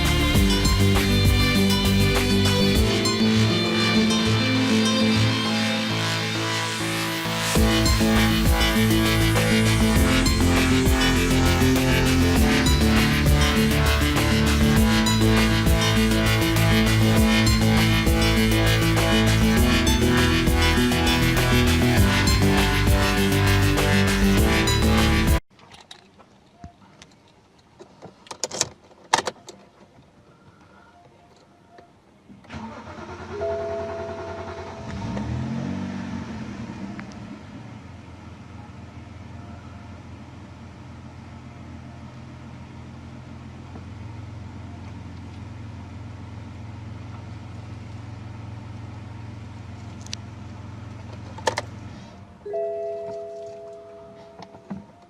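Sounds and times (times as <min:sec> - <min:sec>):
car engine starting and idling: 0:00.0 - 0:25.4, 0:32.3 - 0:55.0
short chime: 0:33.4 - 0:34.9, 0:52.5 - 0:54.7.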